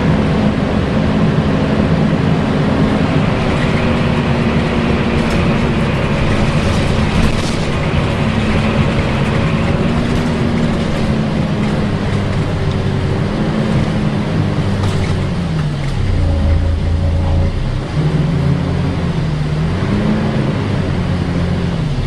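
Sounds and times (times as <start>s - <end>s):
cooling fan whooshing drone: 0.0s - 21.5s
bus engine running: 0.0s - 22.0s.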